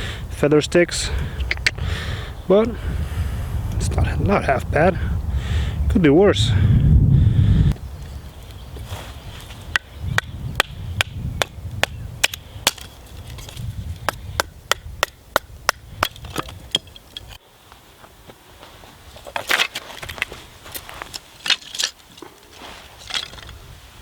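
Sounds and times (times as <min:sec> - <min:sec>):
blade striking wood: 0:09.7 - 0:17.3
wood cracking and knocking: 0:15.7 - 0:17.4.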